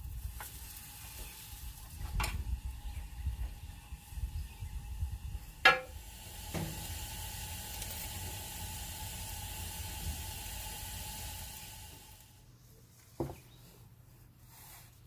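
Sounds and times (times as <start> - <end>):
food sizzling in a hot pan: 0.0 - 12.4.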